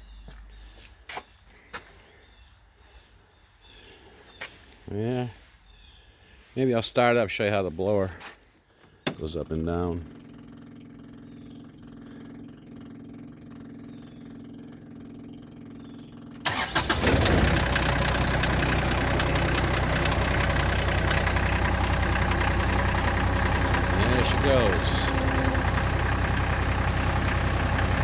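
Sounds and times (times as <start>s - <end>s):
diesel tractor cranking and idling: 6.4s - 28.0s.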